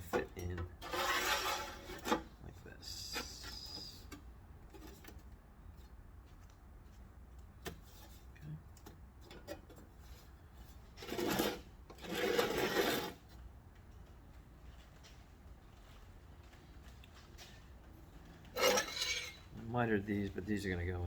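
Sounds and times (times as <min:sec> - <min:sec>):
metal scraping: 0:00.8 - 0:02.3, 0:11.0 - 0:13.2, 0:18.5 - 0:19.6.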